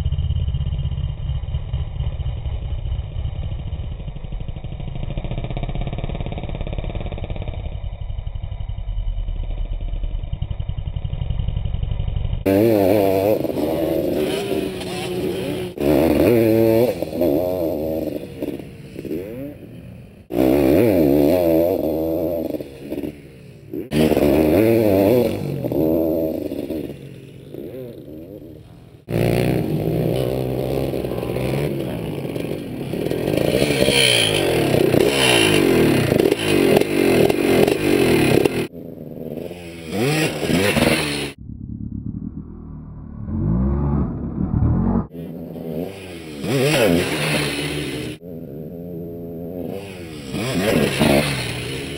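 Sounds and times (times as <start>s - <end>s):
motocross engine revving past: 12.5s - 51.9s.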